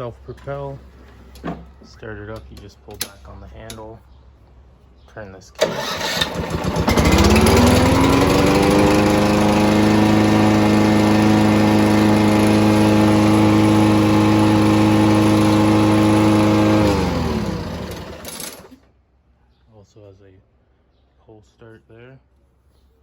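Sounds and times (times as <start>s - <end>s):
lawn mower engine running: 5.6s - 18.8s.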